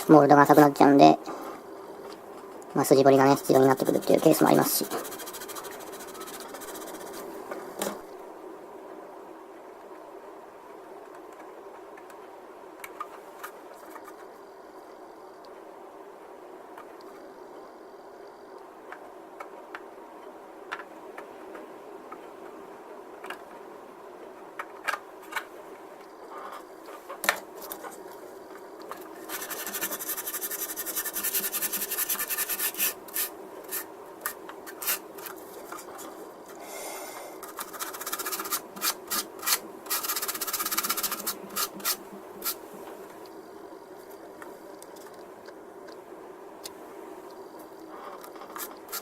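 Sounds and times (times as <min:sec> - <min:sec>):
sanding plastic scraping strokes: 0:03.6 - 0:07.3, 0:29.2 - 0:35.9, 0:37.4 - 0:42.6.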